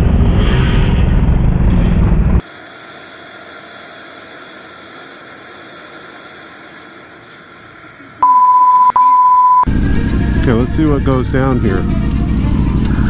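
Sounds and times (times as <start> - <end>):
steady low hiss: 2.4 - 8.9
censor bleep: 8.2 - 9.7.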